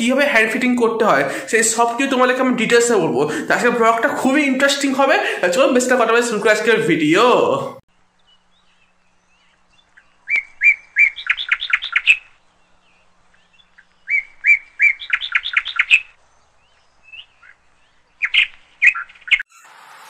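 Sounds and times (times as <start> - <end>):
small bird singing: 7.9 - 19.6.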